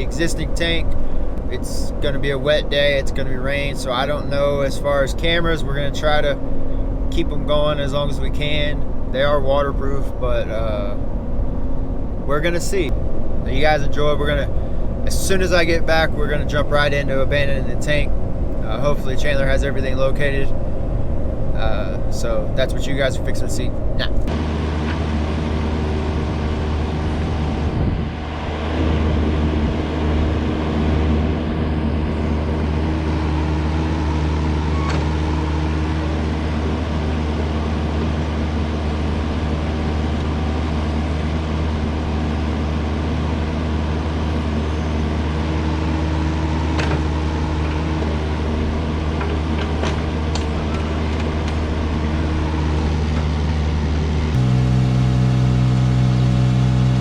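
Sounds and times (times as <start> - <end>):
heavy equipment engine running: 0.0 - 57.0.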